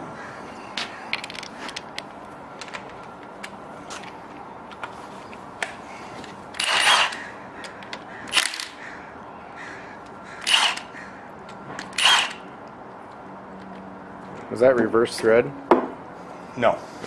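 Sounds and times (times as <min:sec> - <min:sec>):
impact wrench bursts: 0:06.6 - 0:07.2, 0:08.3 - 0:08.8, 0:10.4 - 0:10.9, 0:11.8 - 0:12.4.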